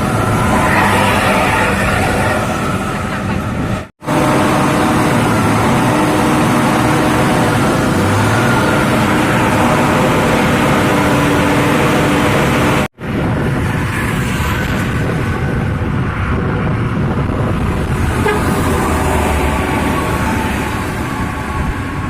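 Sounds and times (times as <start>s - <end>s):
heavy vehicle horns: 0.0s - 5.8s, 18.0s - 21.7s
engine and traffic noise: 0.0s - 22.0s.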